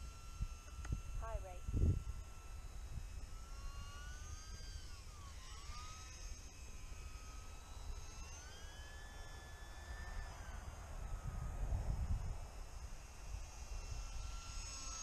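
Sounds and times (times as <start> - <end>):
wind rumble on microphone: 0.0 - 3.2, 10.8 - 12.7
rc plane motor whine: 0.0 - 15.0.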